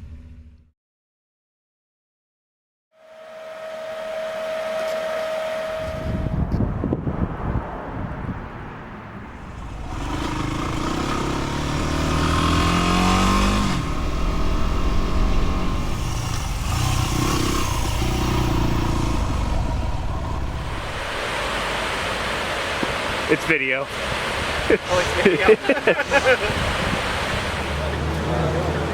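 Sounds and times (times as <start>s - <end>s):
motorcycle engine accelerating: 9.3s - 22.0s.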